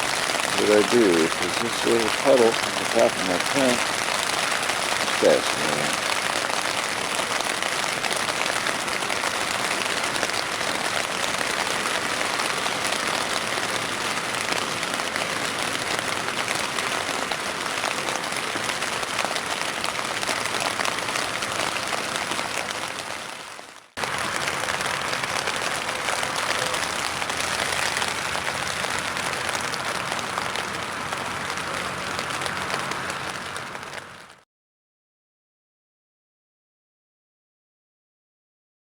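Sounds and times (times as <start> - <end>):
heavy rain on a tent: 0.0 - 34.4.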